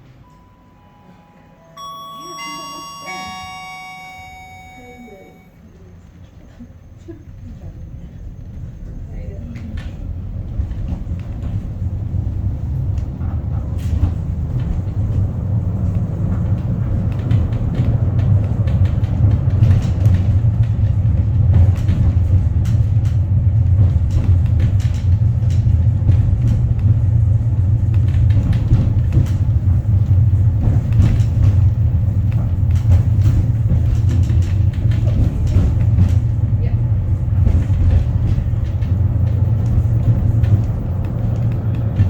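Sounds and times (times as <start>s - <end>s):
cable car rumbling: 0.0s - 42.0s.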